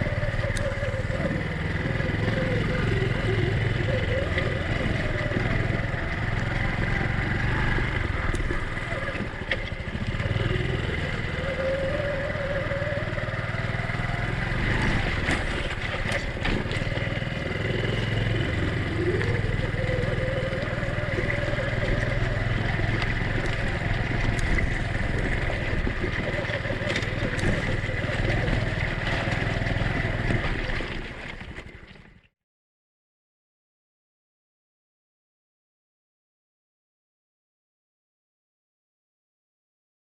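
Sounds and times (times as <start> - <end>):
small motorcycle engine running: 0.0 - 32.2.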